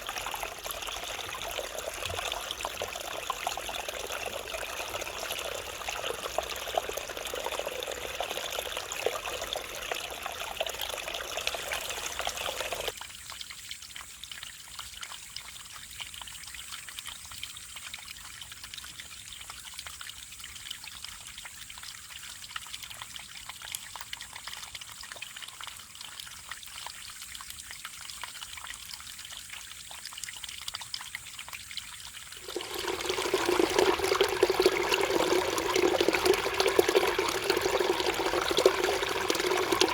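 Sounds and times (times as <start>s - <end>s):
stream flowing over rocks: 0.0s - 13.0s, 32.2s - 39.9s.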